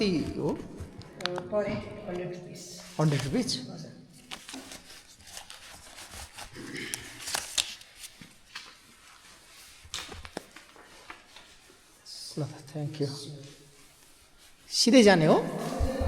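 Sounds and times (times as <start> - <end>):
paper rustling: 2.8 - 12.1, 13.4 - 14.7.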